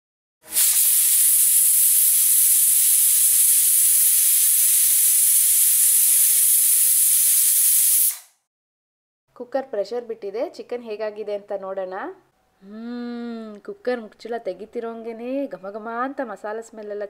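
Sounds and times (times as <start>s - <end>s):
pressure cooker whistle hissing: 0.4s - 8.5s.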